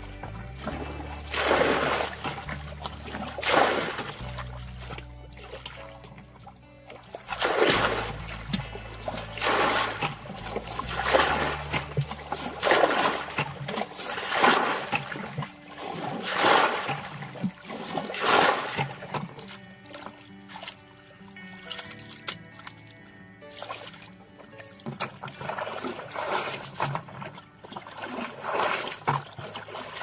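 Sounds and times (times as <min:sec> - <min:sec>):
water splashing in surges: 0:00.0 - 0:30.0.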